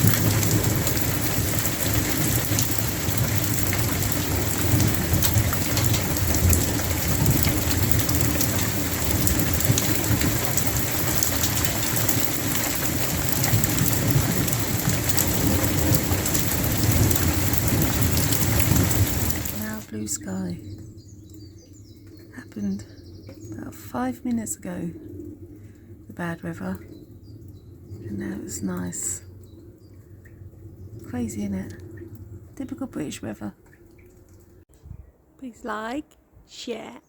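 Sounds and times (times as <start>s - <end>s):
heavy rain pattering: 0.0s - 21.4s
continuous low rumble: 0.0s - 35.6s.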